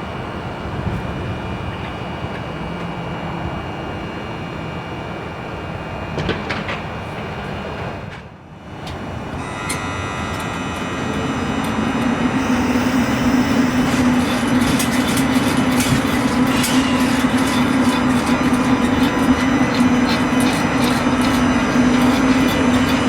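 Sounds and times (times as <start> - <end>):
high-speed train rushing: 0.0 - 23.0
train wheels clicking: 12.0 - 23.0.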